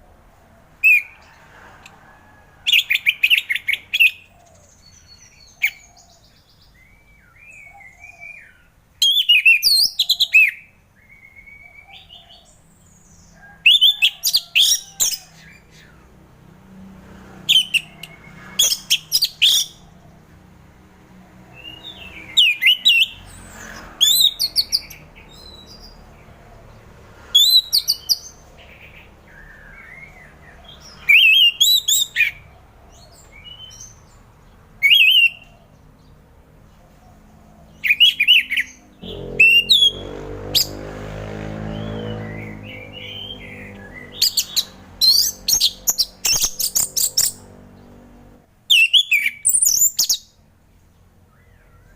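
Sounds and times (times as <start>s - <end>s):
thrush singing whistled notes: 0.8s - 1.2s, 2.7s - 12.4s, 17.5s - 19.9s, 21.6s - 26.0s, 27.3s - 32.4s, 34.8s - 35.6s, 37.8s - 40.9s, 41.6s - 47.4s, 48.7s - 50.3s.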